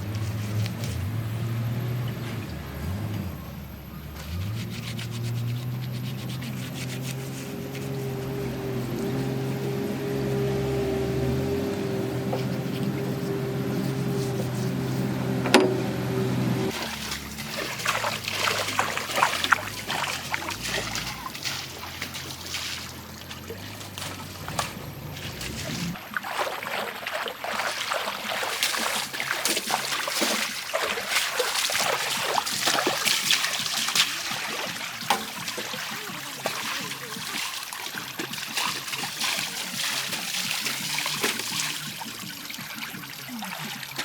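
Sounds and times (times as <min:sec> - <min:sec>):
river water splashing: 0:04.3 - 0:44.0
machine engine humming: 0:07.2 - 0:17.4.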